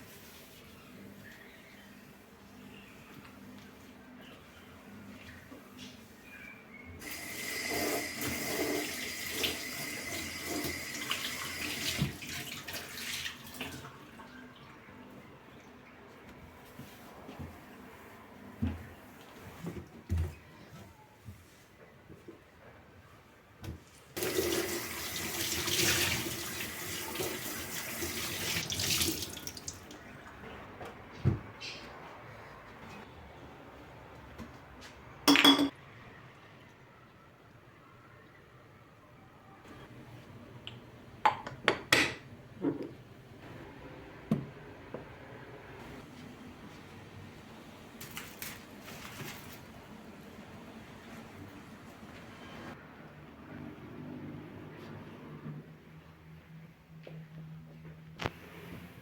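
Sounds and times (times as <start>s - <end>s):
tap running water into sink: 7.0s - 13.8s.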